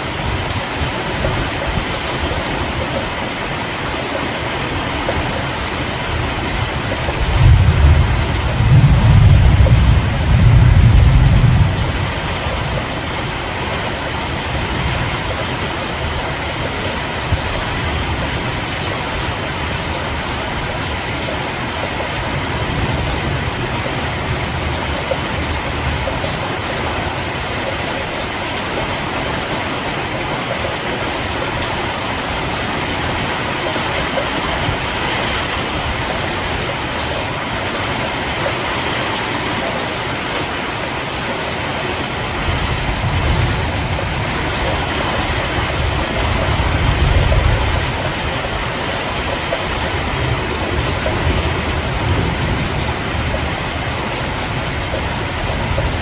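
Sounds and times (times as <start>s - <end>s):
heavy rain: 0.0s - 56.0s
thunder rumble: 4.8s - 28.4s, 42.2s - 56.0s.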